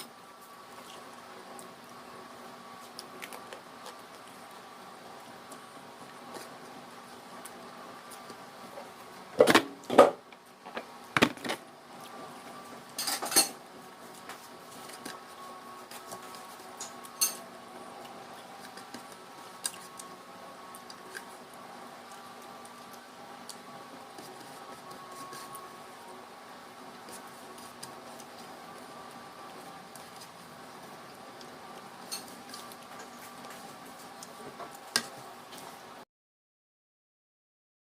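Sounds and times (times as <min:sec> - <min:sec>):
steady background hum: 0:00.0 - 0:36.0
cutlery and dishes clinking: 0:13.0 - 0:13.6, 0:16.8 - 0:17.4.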